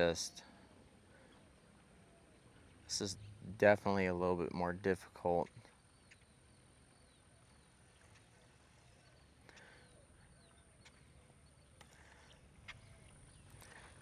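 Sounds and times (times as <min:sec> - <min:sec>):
faint chirps: 0:05.4 - 0:14.0.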